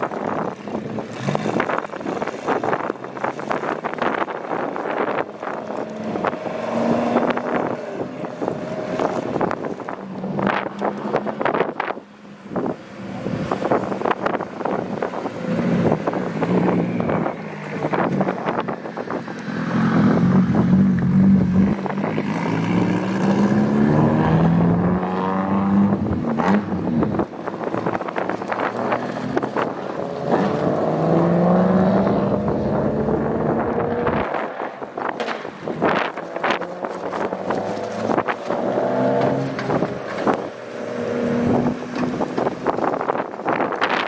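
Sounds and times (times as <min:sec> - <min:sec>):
car engines revving: 0:00.0 - 0:44.0
wind buffeting microphone: 0:00.0 - 0:44.0.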